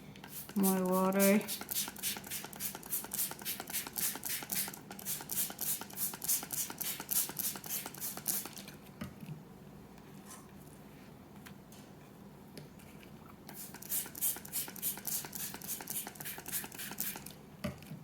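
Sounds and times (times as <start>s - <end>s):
spray bottle squirts: 13.6s - 17.3s.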